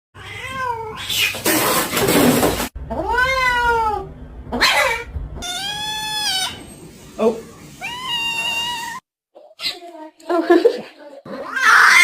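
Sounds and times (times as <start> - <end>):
cat meowing: 2.9 - 6.6, 7.8 - 9.0
cat harsh noisy cry: 2.9 - 6.7, 7.8 - 9.0, 11.5 - 12.0.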